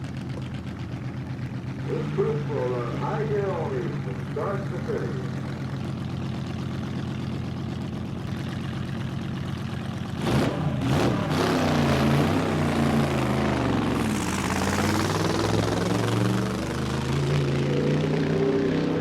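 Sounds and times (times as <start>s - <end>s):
drag racing car engines revving: 0.0s - 19.0s.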